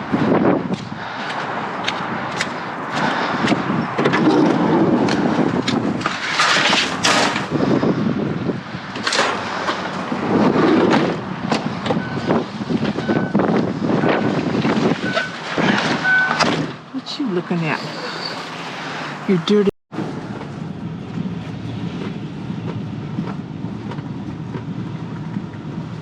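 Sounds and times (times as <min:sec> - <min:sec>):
debris clanking and scraping: 0:04.0 - 0:07.6, 0:14.0 - 0:16.8.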